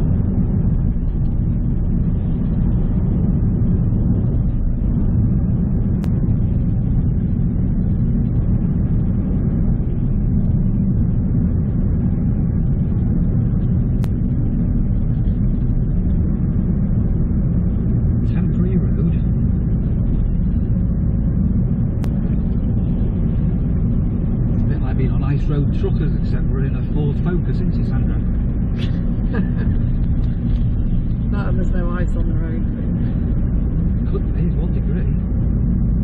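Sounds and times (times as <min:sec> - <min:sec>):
car road and engine rumble: 0:00.0 - 0:36.0.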